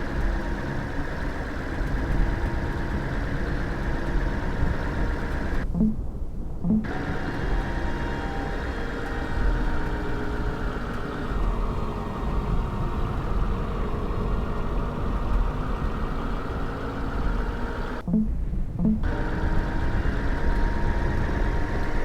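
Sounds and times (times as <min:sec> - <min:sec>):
faint steady tones: 0:00.0 - 0:22.0
vehicle rumble: 0:00.0 - 0:22.0.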